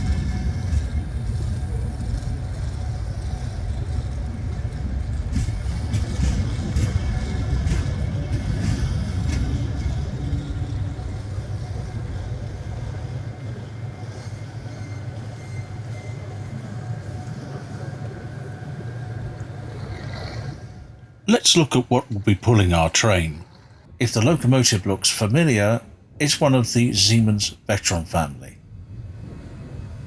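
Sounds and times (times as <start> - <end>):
train coaches rumbling: 0.0 - 17.2, 21.3 - 23.4
train clanks and clicks: 0.0 - 17.7.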